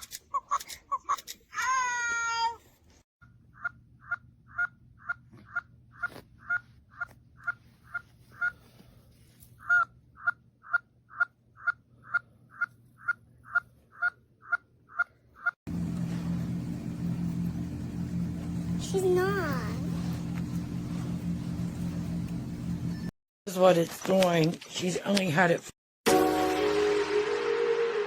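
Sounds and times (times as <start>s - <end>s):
low hum and hiss: 15.7s - 23.1s.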